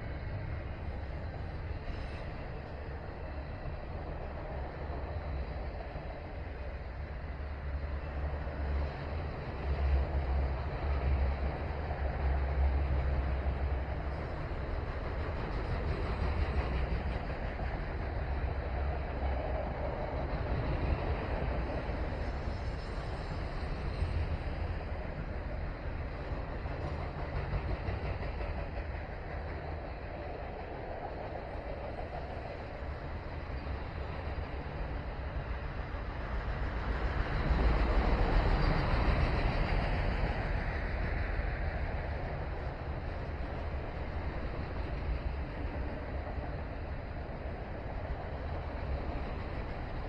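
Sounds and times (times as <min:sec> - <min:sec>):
freight train rumbling past: 0:00.0 - 0:50.0.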